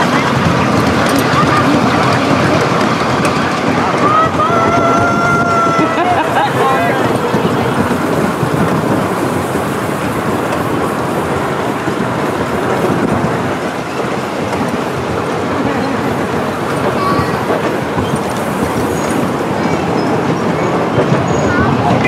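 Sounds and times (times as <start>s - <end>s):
wheels clattering on rails: 0.0s - 22.0s.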